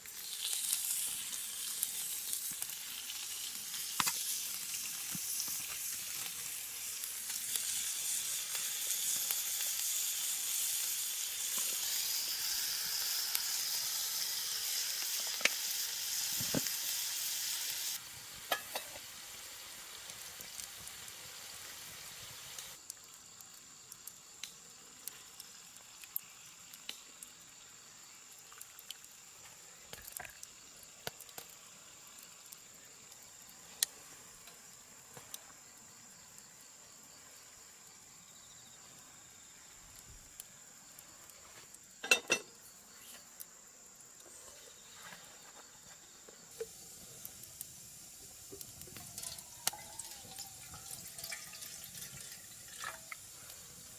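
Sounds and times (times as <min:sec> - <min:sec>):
food sizzling in a frying pan: 0:00.0 - 0:43.2, 0:44.3 - 0:53.9.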